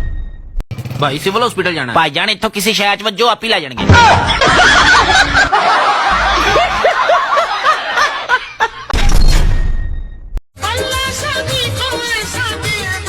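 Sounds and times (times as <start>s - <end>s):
crowd laughing: 4.0s - 9.0s.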